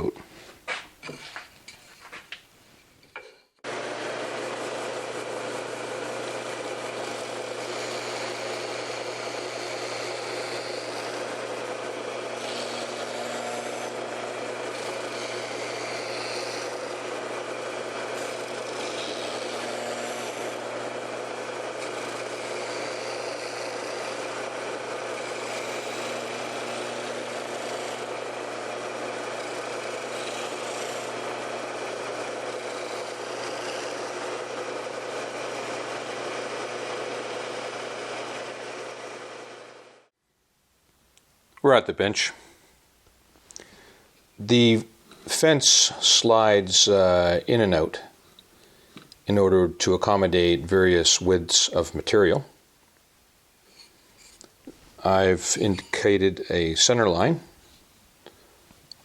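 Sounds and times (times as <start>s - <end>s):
wood being sanded: 3.6s - 40.0s
belt sander running: 3.6s - 40.1s.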